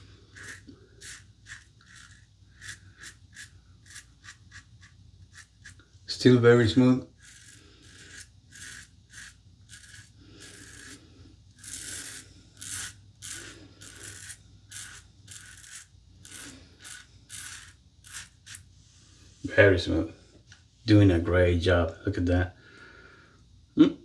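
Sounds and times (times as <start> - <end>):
razor scraping stubble: 0.0 - 5.9, 6.8 - 18.7.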